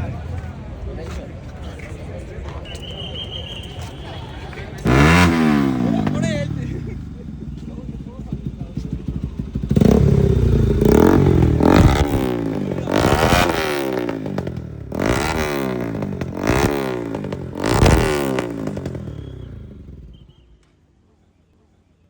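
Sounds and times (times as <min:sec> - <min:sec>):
superbike engine revving: 0:04.6 - 0:20.4.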